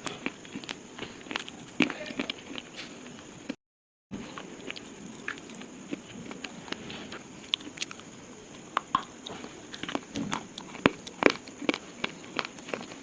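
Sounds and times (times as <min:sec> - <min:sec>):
slate crunching and cracking: 0:04.2 - 0:13.0.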